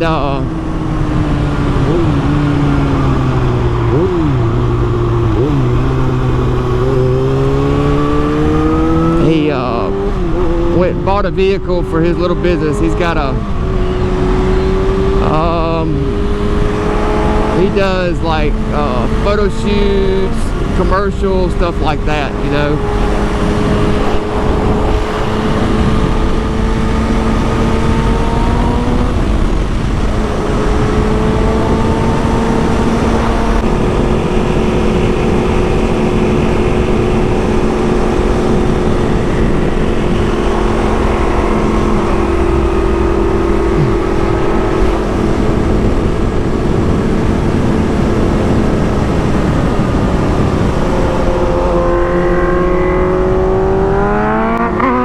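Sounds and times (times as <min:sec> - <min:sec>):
motorcycle engine cruising: 0:00.0 - 0:55.0
wind rush: 0:12.2 - 0:55.0.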